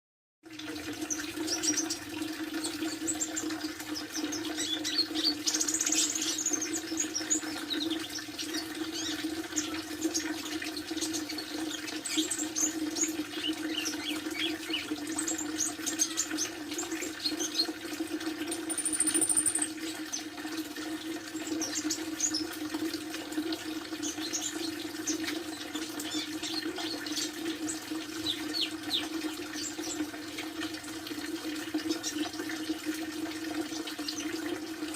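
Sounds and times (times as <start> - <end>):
sunbird chirping: 18.6 - 19.7.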